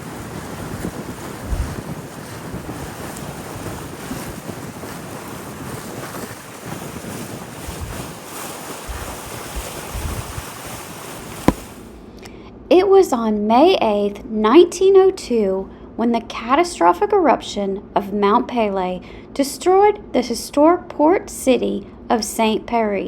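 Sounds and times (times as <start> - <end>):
wind buffeting microphone: 0.0 - 11.9
sea water rushing: 0.0 - 12.0.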